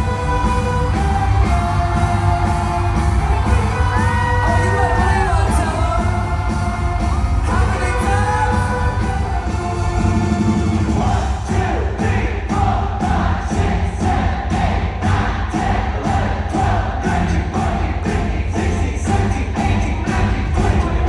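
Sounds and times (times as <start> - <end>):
live band music: 0.0 - 12.2
person singing: 0.0 - 12.7.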